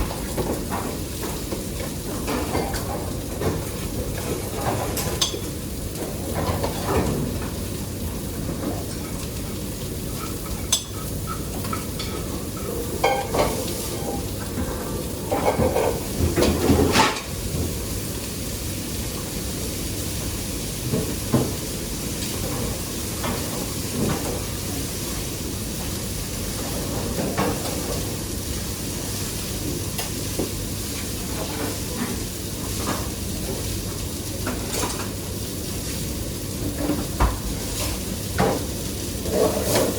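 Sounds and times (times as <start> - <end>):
utensils and dishes clattering: 0.0 - 7.7, 8.4 - 17.7, 34.4 - 35.2, 36.6 - 39.9
hissing kitchen noise: 0.0 - 39.9.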